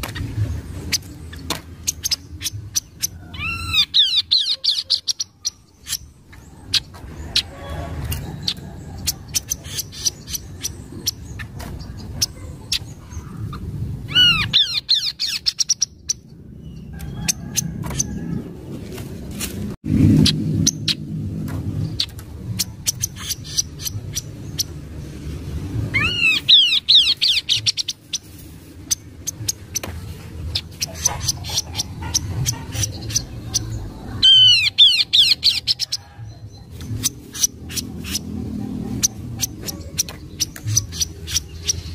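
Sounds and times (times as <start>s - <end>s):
bird chirping: 0.0s - 18.6s, 20.1s - 25.1s, 25.9s - 41.9s
low rumble: 5.1s - 41.9s
bird clicking calls: 39.0s - 41.8s.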